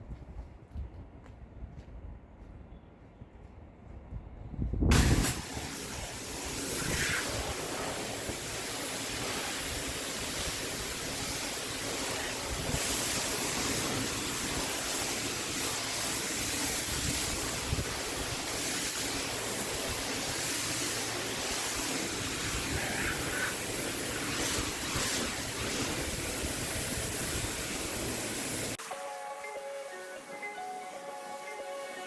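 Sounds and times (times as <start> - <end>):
pressure washer spraying concrete: 4.9 - 28.8.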